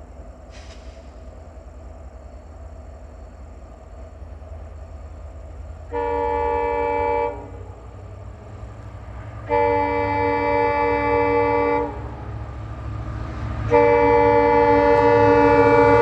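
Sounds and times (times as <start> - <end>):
train rumbling: 0.0 - 16.0
locomotive horn blasts: 5.9 - 7.7, 9.4 - 12.4, 13.6 - 16.0.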